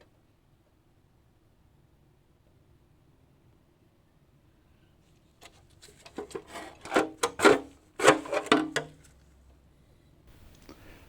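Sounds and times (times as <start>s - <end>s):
rubbing and scraping strokes: 5.8s - 8.6s.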